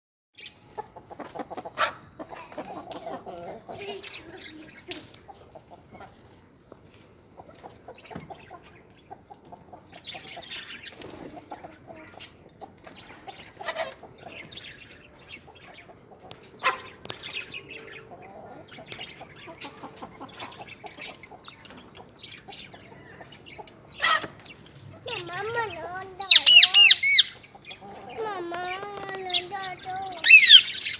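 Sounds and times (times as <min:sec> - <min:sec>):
birds chirping and squawking: 0:07.6 - 0:30.9
sharp bird calls: 0:16.6 - 0:30.9.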